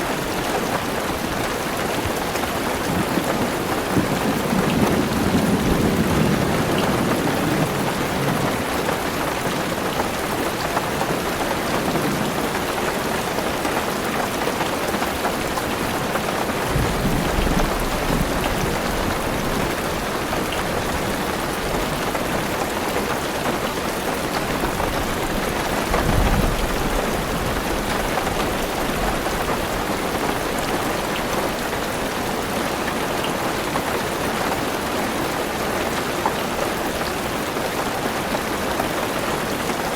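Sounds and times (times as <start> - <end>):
heavy rain on car roof: 0.0 - 39.9
thunder rumbling: 2.9 - 9.1, 16.6 - 22.0, 24.5 - 30.6.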